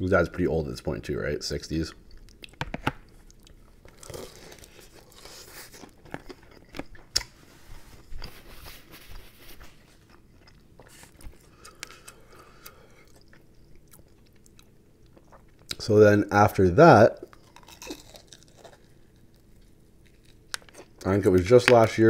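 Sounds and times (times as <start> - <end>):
chewing crispy fried chicken: 2.0 - 7.4, 17.2 - 21.4.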